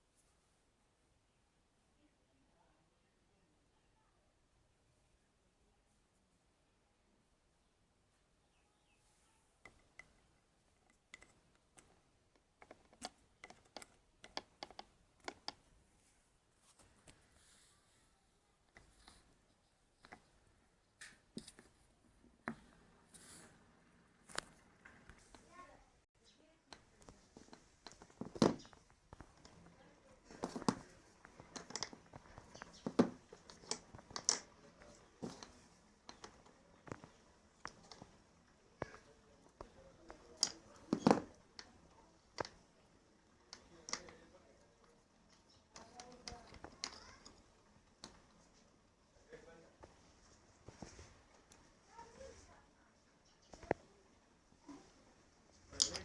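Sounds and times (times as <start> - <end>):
light irregular clicks and taps: 9.6 - 17.7, 18.6 - 23.6, 24.2 - 25.8, 26.7 - 56.0.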